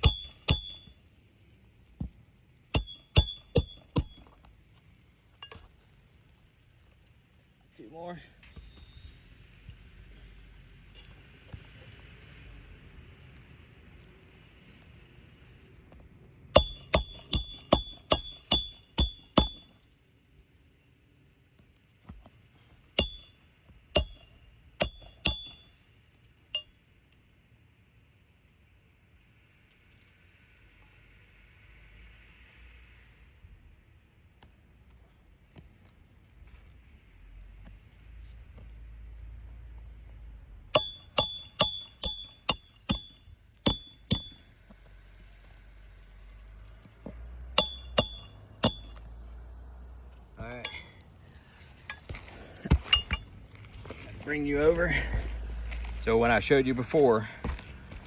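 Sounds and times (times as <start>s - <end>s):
hammer striking metal: 0.0s - 0.9s, 2.7s - 4.3s, 16.6s - 19.7s, 23.0s - 23.4s, 24.0s - 25.7s, 40.7s - 44.5s, 47.6s - 49.0s, 52.7s - 53.3s.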